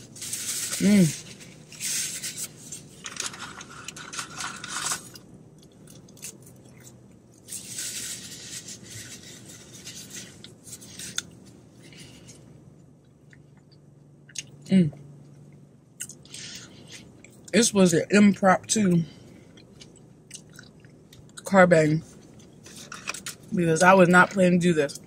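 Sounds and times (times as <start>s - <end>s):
person chewing crunchy food: 0.0s - 17.5s, 19.3s - 21.5s.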